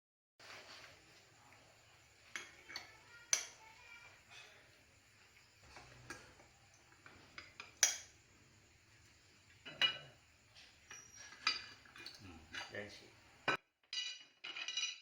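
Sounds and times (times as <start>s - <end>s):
metal parts and tools clinking: 9.7s - 12.7s, 13.9s - 15.0s.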